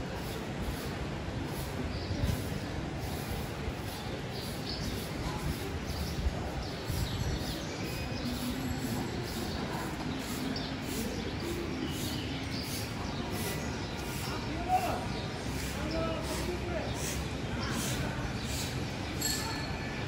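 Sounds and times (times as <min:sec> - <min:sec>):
street noise: 0:00.0 - 0:20.0
birds chirping: 0:03.7 - 0:19.8.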